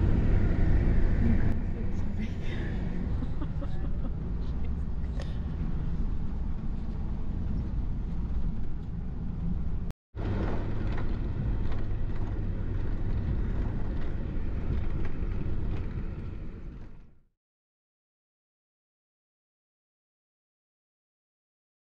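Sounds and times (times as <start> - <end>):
vehicle engine low rumble: 0.0 - 17.3.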